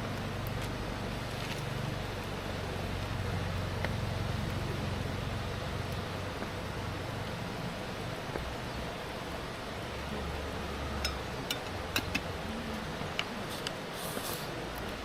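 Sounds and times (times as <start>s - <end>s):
steady low background noise: 0.0s - 15.0s
brief hiss: 13.5s - 14.6s.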